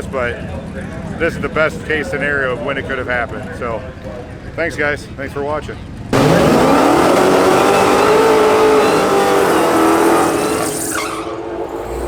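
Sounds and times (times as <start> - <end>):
race car engine accelerating: 6.1 - 12.0.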